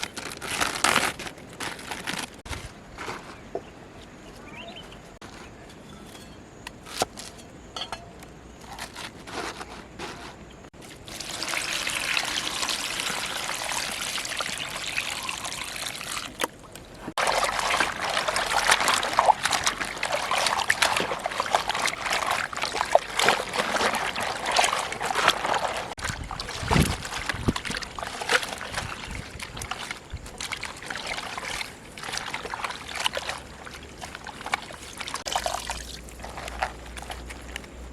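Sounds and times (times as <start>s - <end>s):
water pouring and sloshing: 10.7s - 37.9s
small clicks and splashes: 16.0s - 37.8s.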